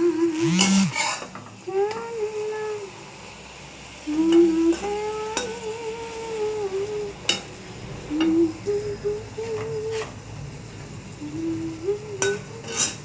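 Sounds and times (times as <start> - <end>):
woman humming: 0.0 - 1.0, 4.1 - 7.2, 8.1 - 10.0, 11.2 - 12.7
oil sizzling: 0.0 - 13.0
metal utensil clinking on pan: 12.2 - 13.0.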